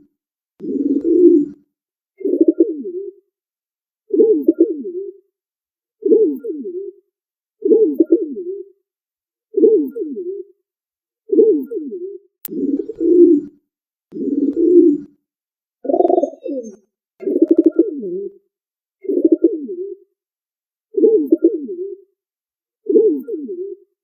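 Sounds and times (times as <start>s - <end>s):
pigeon cooing: 15.8s - 18.3s.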